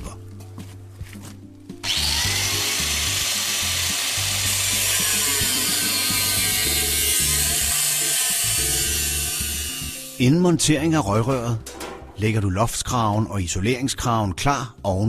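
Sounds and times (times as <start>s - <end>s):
angle grinder cutting steel pipe: 1.8s - 10.3s.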